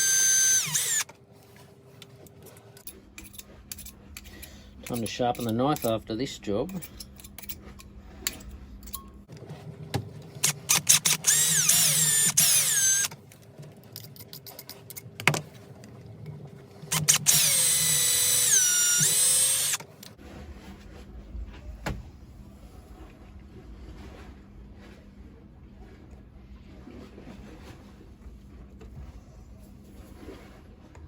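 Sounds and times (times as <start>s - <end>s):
small power drill whining: 0.0s - 1.1s, 10.4s - 13.2s, 16.9s - 19.9s.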